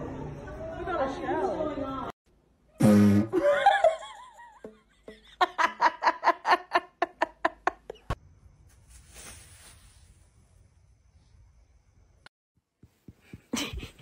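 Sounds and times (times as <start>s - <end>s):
person laughing: 3.3s - 8.2s, 13.4s - 14.0s.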